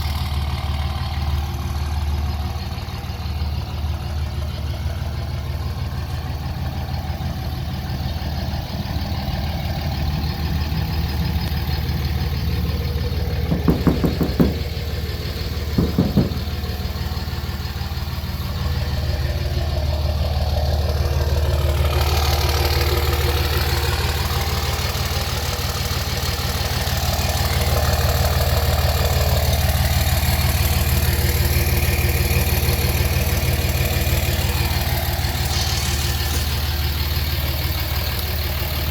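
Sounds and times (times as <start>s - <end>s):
diesel engine idling: 0.0s - 38.9s
short knocks: 13.5s - 15.1s, 15.7s - 16.8s.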